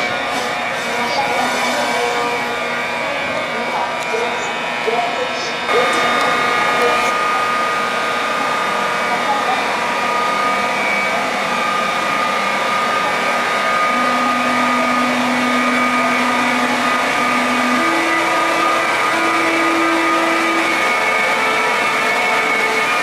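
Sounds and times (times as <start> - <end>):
electric train motor whine: 0.0 - 23.0.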